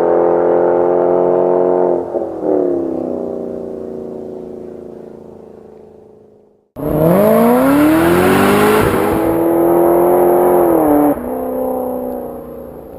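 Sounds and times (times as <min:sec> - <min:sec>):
car engine accelerating hard: 0:00.0 - 0:05.9, 0:06.8 - 0:12.9.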